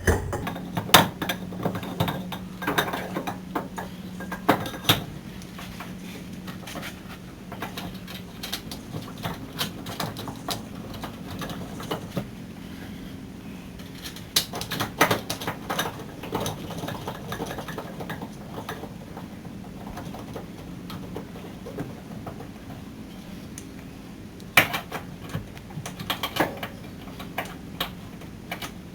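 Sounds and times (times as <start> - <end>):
steady low hum: 0.0 - 0.8.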